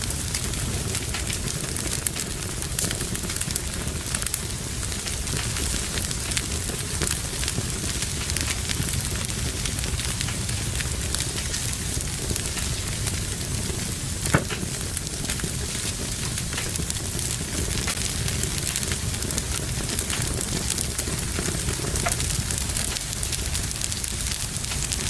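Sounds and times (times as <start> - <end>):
wood fire crackling: 0.0 - 25.0
sharp fire pop: 14.1 - 17.0, 17.6 - 23.2.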